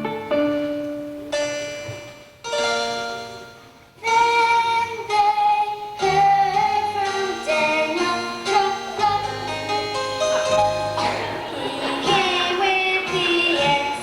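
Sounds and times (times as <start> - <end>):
instrumental accompaniment: 0.0 - 14.0
children singing: 4.0 - 14.0.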